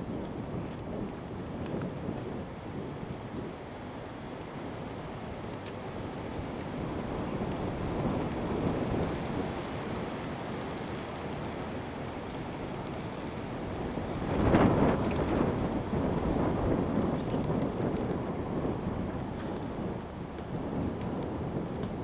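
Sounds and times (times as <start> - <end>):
wind gusting over microphone: 13.3 - 22.0.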